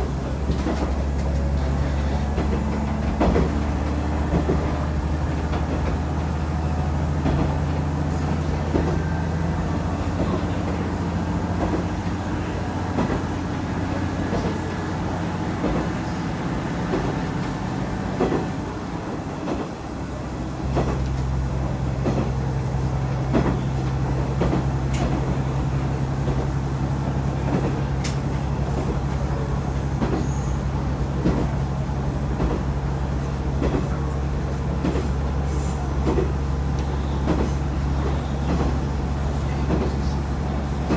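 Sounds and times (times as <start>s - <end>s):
wheels clicking over rail joints: 0.0s - 9.4s, 20.6s - 40.9s
railcar engine drone: 0.0s - 40.9s.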